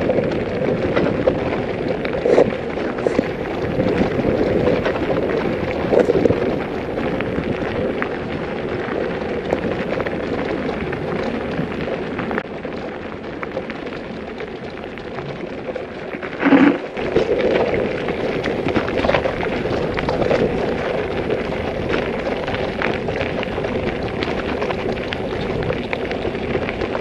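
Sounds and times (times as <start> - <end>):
bicycle tyres on gravel: 0.0 - 27.0
camera rattling: 0.9 - 3.4, 16.2 - 17.9.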